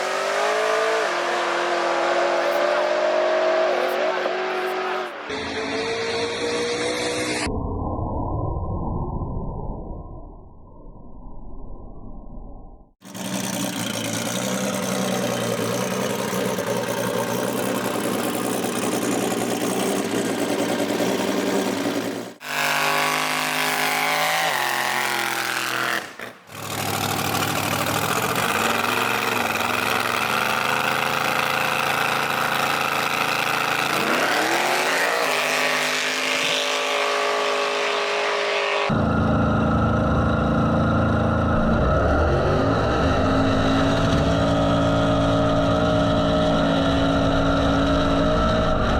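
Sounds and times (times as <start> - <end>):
race car engines accelerating: 0.0 - 7.5, 13.0 - 48.9.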